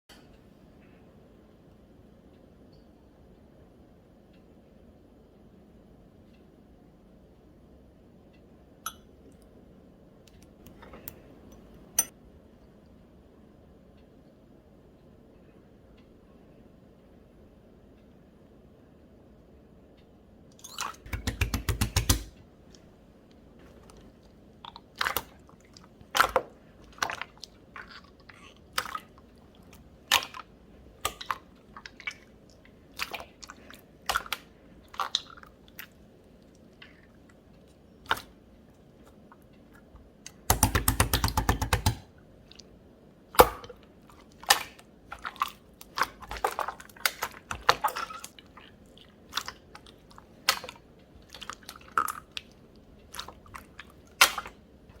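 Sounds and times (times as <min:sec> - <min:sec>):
slime squished by hand: 0:53.1 - 0:54.6.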